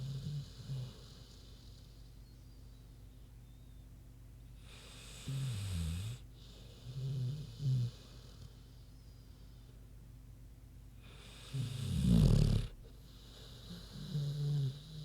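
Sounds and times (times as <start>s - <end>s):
dog snoring: 0.0s - 2.0s, 4.7s - 8.7s, 11.0s - 15.0s.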